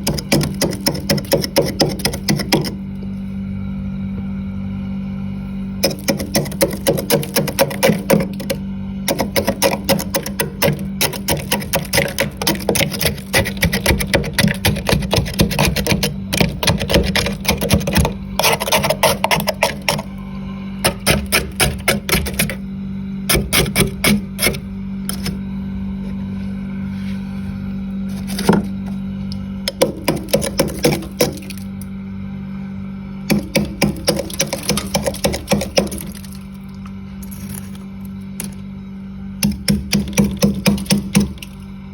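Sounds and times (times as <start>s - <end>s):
low hum: 0.0s - 41.9s
frost scraped from freezer: 5.8s - 20.1s, 20.8s - 22.6s, 23.4s - 25.4s, 26.8s - 29.0s, 33.4s - 36.5s.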